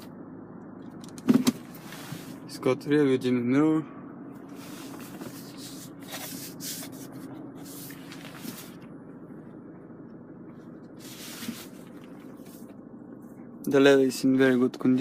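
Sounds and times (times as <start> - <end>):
steady low hum: 0.0 - 15.0
faint rubbing and rustling: 1.6 - 2.6, 4.4 - 9.0, 10.5 - 13.5.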